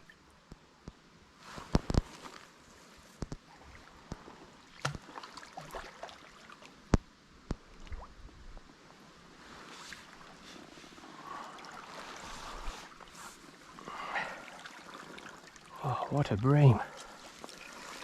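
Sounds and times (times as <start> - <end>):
river water rushing: 11.0 - 18.0.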